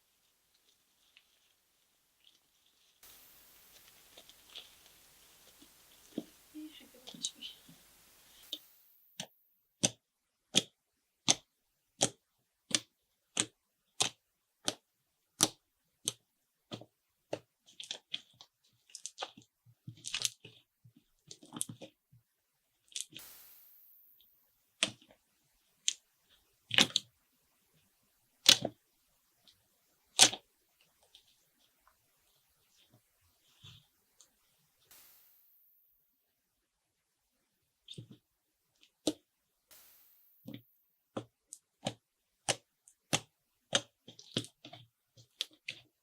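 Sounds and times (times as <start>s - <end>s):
irregular crackling: 0.2s - 10.0s.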